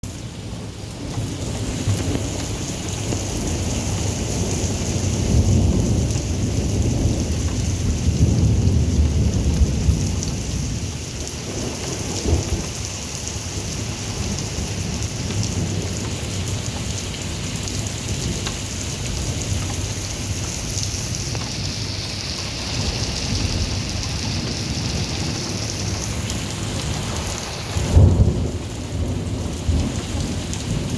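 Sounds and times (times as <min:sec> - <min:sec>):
steady rain: 0:00.0 - 0:30.9
rolling thunder: 0:00.5 - 0:16.6, 0:22.6 - 0:30.9
loud thunderclap: 0:26.9 - 0:30.9.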